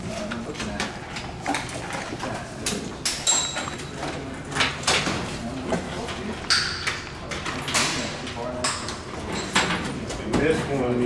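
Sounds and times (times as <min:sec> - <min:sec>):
metal parts and tools clattering: 0:03.2 - 0:03.8.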